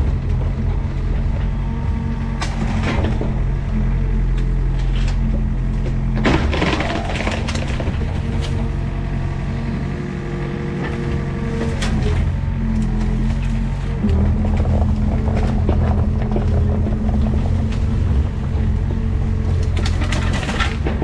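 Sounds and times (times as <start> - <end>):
excavator diesel engine running: 0.0 - 21.0
wood breaking crash: 6.2 - 8.7, 19.6 - 21.0.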